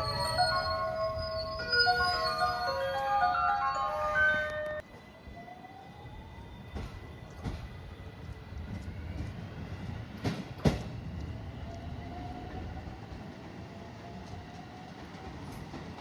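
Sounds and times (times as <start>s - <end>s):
train rumble: 0.0s - 16.0s
wheels clacking over rail joints: 6.7s - 11.8s.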